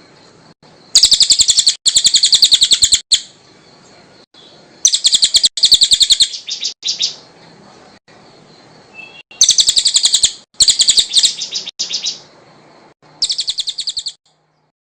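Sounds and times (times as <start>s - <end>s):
songbird chattering trills: 0.3s - 14.7s.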